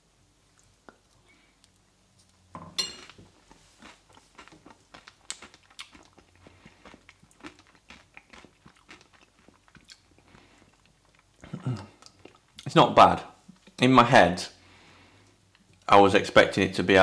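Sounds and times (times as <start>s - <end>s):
close-up chewing with crunches: 3.0s - 12.7s.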